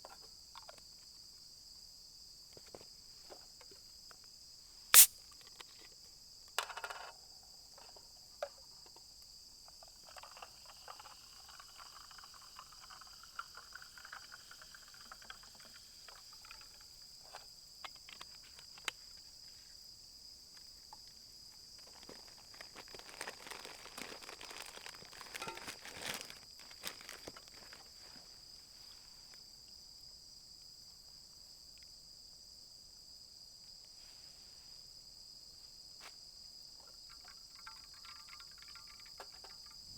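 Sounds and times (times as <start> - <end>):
insects chirring: 0.0 - 39.9
light clicks and rustles: 36.8 - 39.8.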